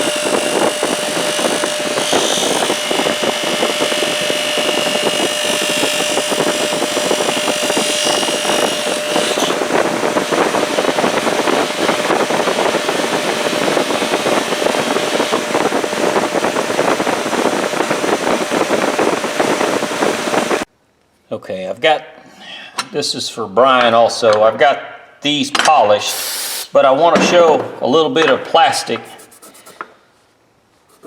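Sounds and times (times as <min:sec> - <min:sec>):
bench polisher running: 0:00.0 - 0:20.7.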